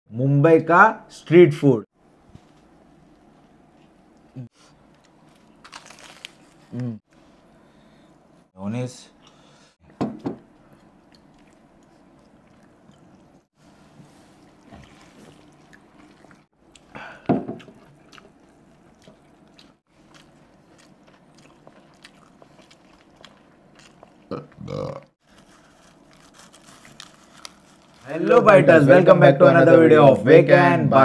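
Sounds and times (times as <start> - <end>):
person crunching and chewing food: 3.1 - 6.8, 10.6 - 13.5, 14.4 - 28.2.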